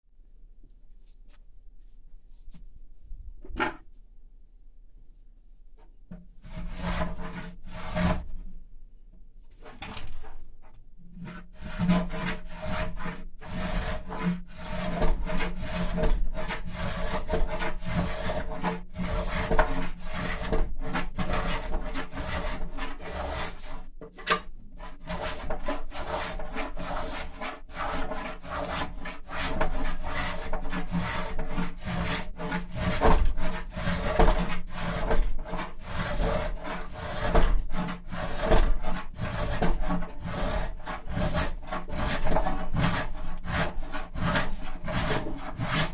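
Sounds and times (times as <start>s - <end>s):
hand tool rasping wood: 6.5s - 8.3s, 11.2s - 45.9s.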